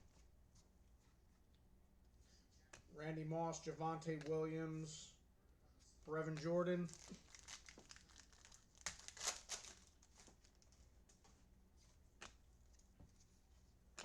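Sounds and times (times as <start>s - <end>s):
card packs crinkling: 6.1s - 10.8s.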